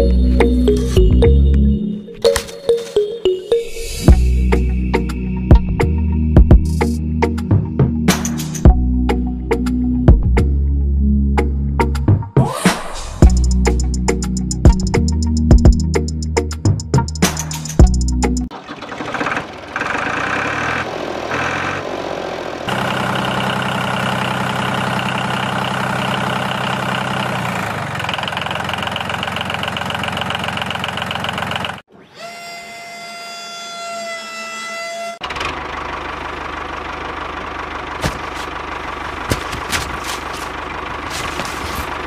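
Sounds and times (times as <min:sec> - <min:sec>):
sticks clattering: 0:39.2 - 0:42.0.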